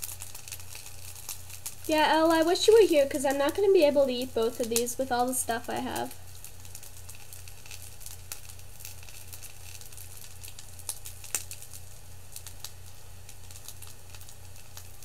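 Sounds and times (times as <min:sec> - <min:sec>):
food frying on a skillet: 0:00.0 - 0:15.0
steady low hum: 0:01.7 - 0:07.0.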